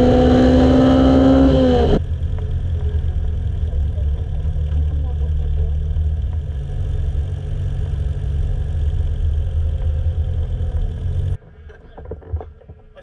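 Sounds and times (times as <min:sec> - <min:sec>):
sports car engine idling: 0:01.2 - 0:11.4.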